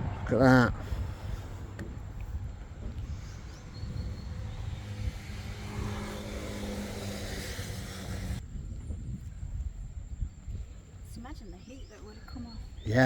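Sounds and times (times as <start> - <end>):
vehicle engine running: 0.8 - 8.4.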